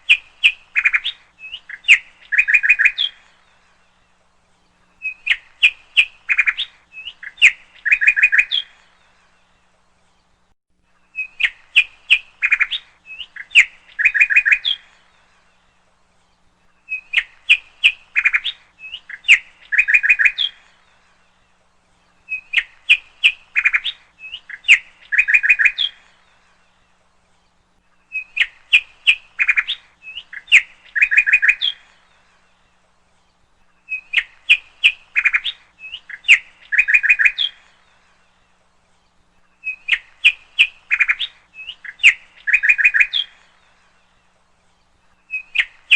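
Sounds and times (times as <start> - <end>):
bird song with trill: 0.0 - 45.9.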